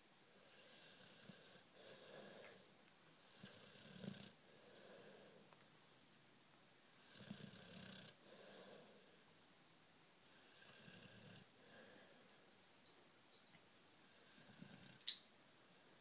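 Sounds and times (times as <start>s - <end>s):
dog snoring faintly: 0.4s - 5.5s, 7.0s - 9.2s, 10.2s - 12.3s, 14.0s - 15.0s.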